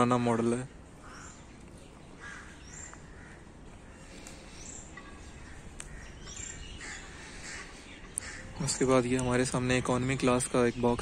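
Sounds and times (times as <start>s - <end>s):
outdoor background noise: 0.0s - 11.0s
low bird calls: 0.9s - 11.0s
high bird chirps: 4.0s - 8.9s.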